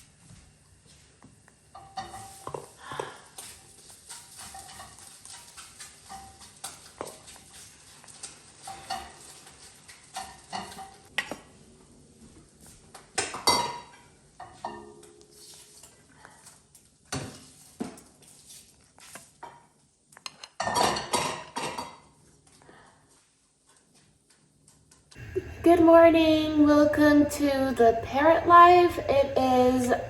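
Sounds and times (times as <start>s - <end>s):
dishes and utensils clattering: 1.8s - 11.1s, 13.2s - 16.0s, 20.3s - 22.2s.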